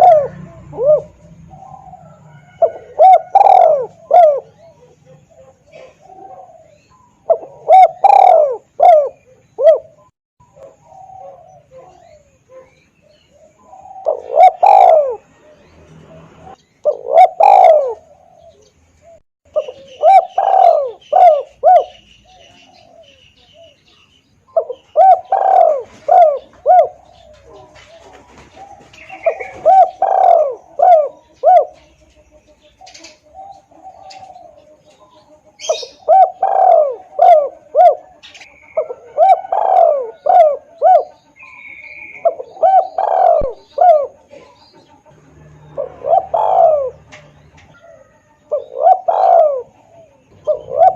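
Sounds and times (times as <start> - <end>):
dove cooing: 0.0 - 23.9, 24.5 - 50.9
faint bird chirps: 16.5 - 50.9.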